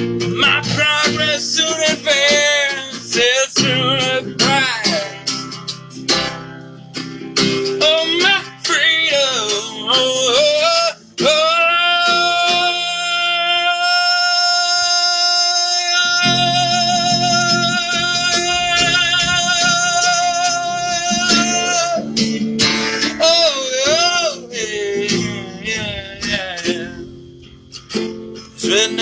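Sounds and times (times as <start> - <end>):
man singing: 0.0 - 6.5, 7.4 - 29.0
strummed guitar: 0.0 - 29.0.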